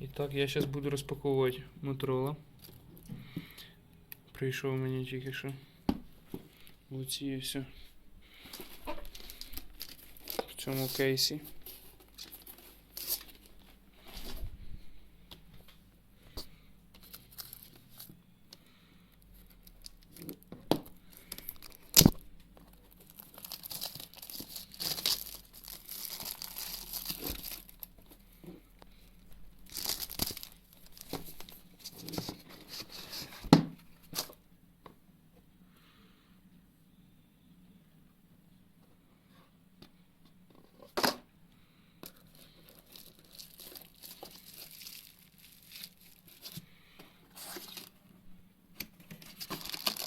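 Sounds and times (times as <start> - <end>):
plastic wrap crinkling: 8.4 - 14.5, 17.0 - 18.2, 19.4 - 28.4, 29.0 - 33.4, 42.0 - 46.7, 49.0 - 50.0
packaging tearing: 22.9 - 27.9, 29.6 - 32.1, 42.3 - 46.6, 49.0 - 50.0.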